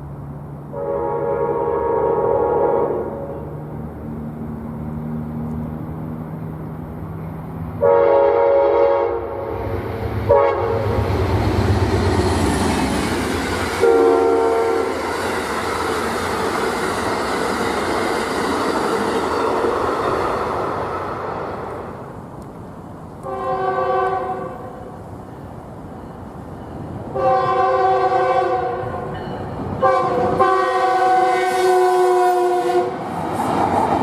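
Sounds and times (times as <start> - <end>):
train rumble and rail noise: 0.0 - 34.0
train horn blasts: 0.7 - 3.6, 7.8 - 11.2, 13.7 - 15.1, 23.2 - 25.0, 27.1 - 33.0.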